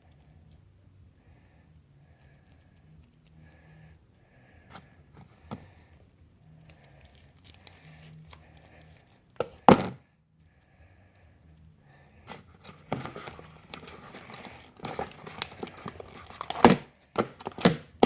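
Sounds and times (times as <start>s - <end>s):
sticky slime being worked: 12.2s - 18.0s
loud handling noise: 12.3s - 18.0s.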